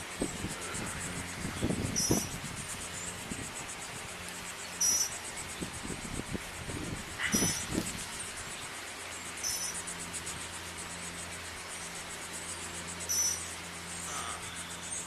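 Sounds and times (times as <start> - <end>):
insects chirping trill: 0.0 - 15.0.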